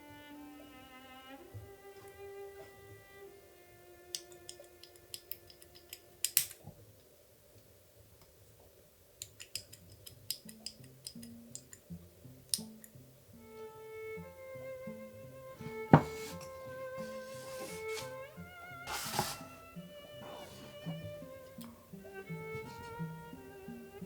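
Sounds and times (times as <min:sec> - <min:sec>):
soft string music: 0:00.0 - 0:06.8, 0:09.8 - 0:24.0
plastic parts clicking and tapping: 0:04.2 - 0:06.8, 0:09.2 - 0:11.9.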